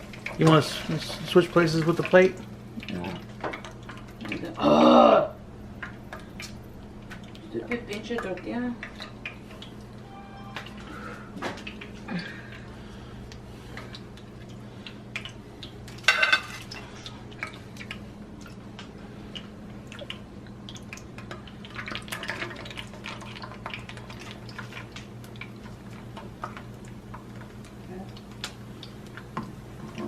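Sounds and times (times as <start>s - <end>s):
steady low hum: 0.0s - 22.2s
tortillas frying in hot oil: 0.0s - 30.0s.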